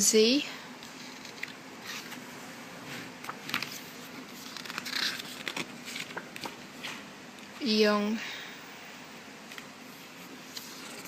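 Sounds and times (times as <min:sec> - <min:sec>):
photobook pages turning: 0:00.8 - 0:02.2, 0:02.9 - 0:07.0, 0:09.5 - 0:11.0.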